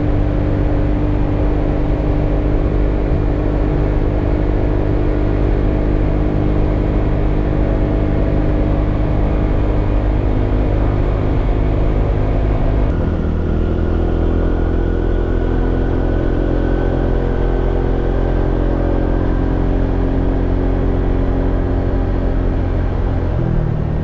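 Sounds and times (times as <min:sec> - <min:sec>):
scooter engine droning: 0:00.0 - 0:24.0.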